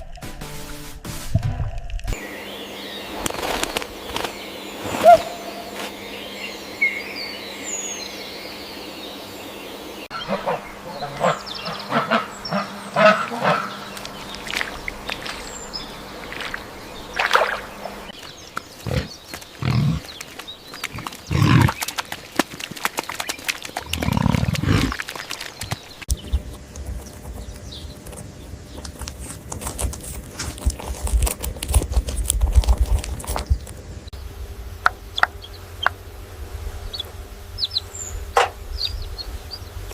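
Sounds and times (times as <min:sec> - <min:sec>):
farm animal calls and grunts: 0:10.1 - 0:18.2, 0:18.8 - 0:25.8
clicks and rustles: 0:18.2 - 0:33.8.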